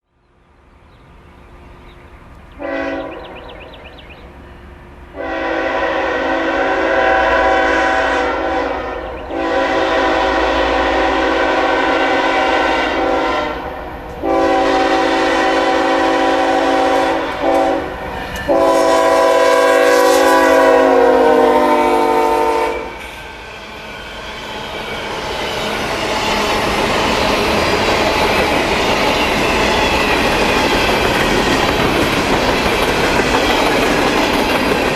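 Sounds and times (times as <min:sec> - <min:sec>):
train rumble and wheel clatter: 0:00.2 - 0:34.9
locomotive air horn: 0:02.6 - 0:03.5, 0:05.2 - 0:23.0.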